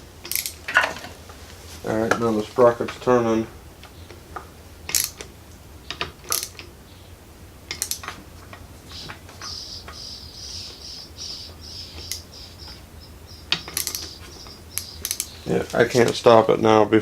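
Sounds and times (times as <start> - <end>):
ratchet clicking: 4.9 - 5.2, 6.2 - 6.6, 13.5 - 15.4.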